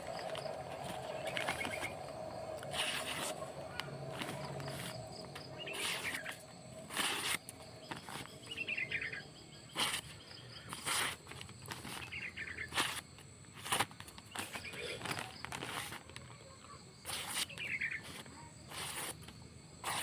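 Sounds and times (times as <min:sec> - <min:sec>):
birds chirping in trills: 0:00.0 - 0:10.9, 0:11.7 - 0:12.8, 0:14.2 - 0:15.5, 0:17.4 - 0:18.2
insect chirr: 0:00.0 - 0:20.0.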